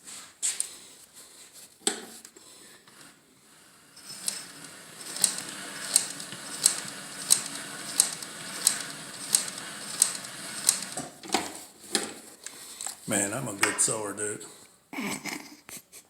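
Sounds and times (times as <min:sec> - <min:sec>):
sewing machine stitching: 0:03.9 - 0:12.2.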